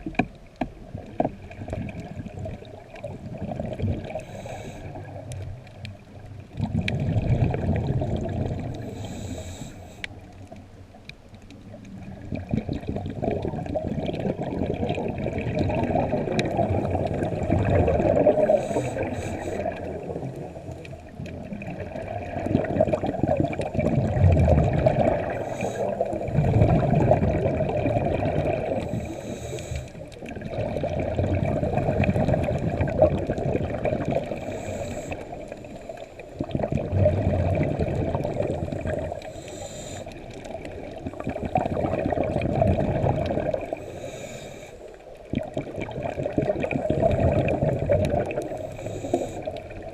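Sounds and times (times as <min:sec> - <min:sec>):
exhaled bubbles gurgling: 0:00.0 - 0:49.9
regulator breaths: 0:04.2 - 0:05.1, 0:08.8 - 0:10.2, 0:18.4 - 0:20.8, 0:28.8 - 0:30.1, 0:34.3 - 0:36.4, 0:39.1 - 0:40.3, 0:43.7 - 0:45.0, 0:48.5 - 0:49.7.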